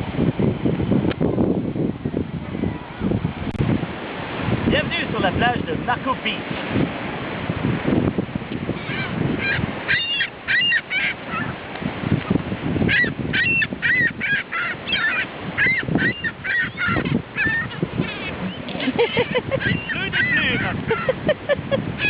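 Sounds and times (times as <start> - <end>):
birds squawking: 8.7 - 11.6, 12.9 - 22.0.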